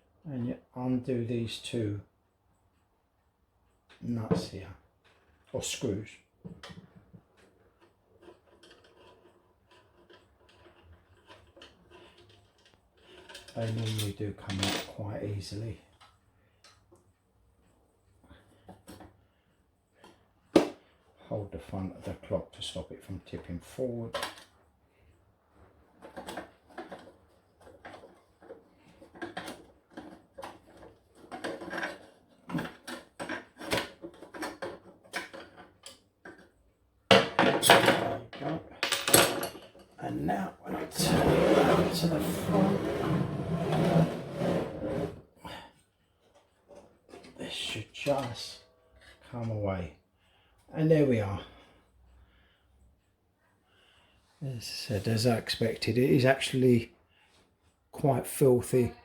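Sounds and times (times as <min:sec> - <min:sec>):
small metallic clicks and scrapes: 0:06.6 - 0:14.9, 0:26.0 - 0:36.7
clock parts knocking and scraping: 0:07.4 - 0:15.0.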